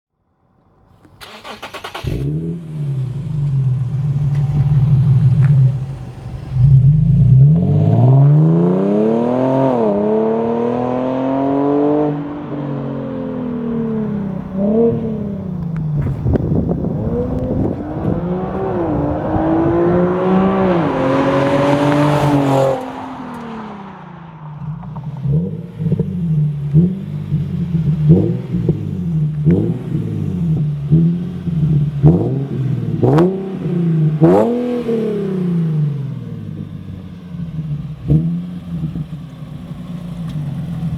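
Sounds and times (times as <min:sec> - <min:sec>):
car engine revving through gears: 0:01.2 - 0:40.9.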